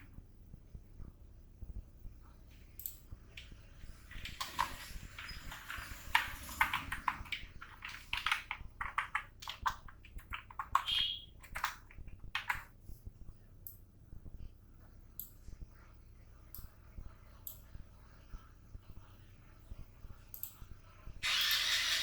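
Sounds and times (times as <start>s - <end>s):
keyboard typing: 2.8s - 12.7s.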